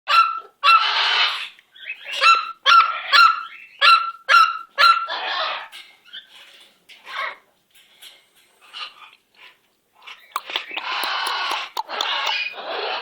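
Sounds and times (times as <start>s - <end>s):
parrot calls and screeches: 0.3s - 4.0s, 4.9s - 6.4s, 10.3s - 13.0s.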